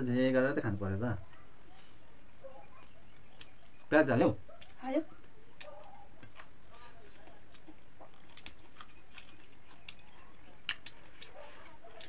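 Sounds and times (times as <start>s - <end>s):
chewing and lip smacks: 2.6s - 3.9s, 4.5s - 12.0s.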